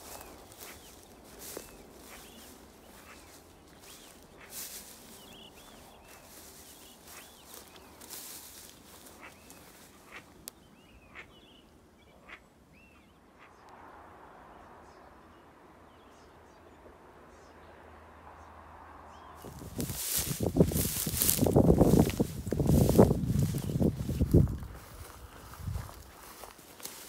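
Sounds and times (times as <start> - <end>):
rustling: 0.0 - 10.2, 19.4 - 27.0
birds chirping: 0.0 - 13.7, 19.1 - 27.0.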